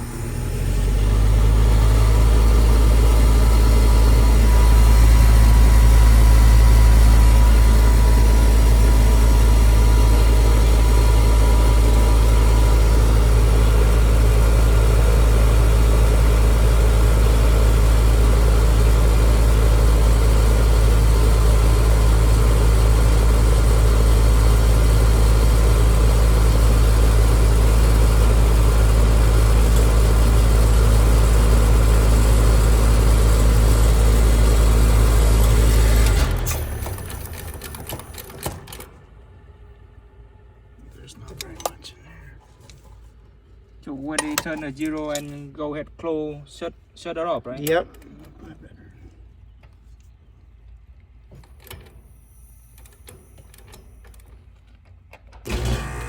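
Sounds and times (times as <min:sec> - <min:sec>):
air conditioner unit humming: 0:02.1 - 0:36.3.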